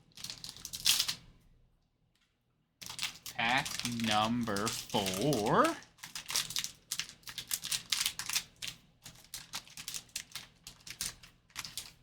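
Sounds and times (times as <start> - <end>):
wrapper crinkling as torn open: 0.0 - 1.3, 2.8 - 12.0.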